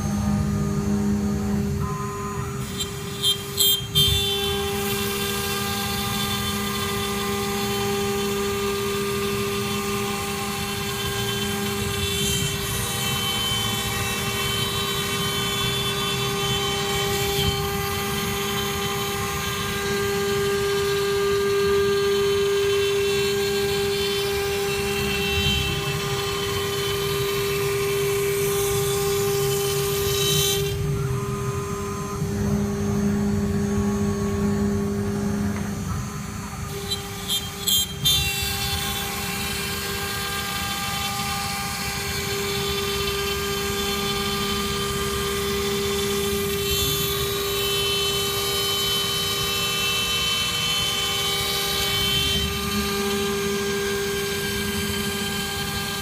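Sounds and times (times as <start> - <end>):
router spindle whine: 0.0 - 56.0.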